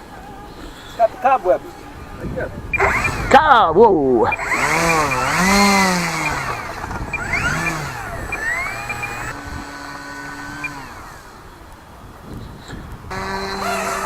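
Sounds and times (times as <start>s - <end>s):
model plane electric motor whine: 2.2s - 3.4s, 4.2s - 14.0s.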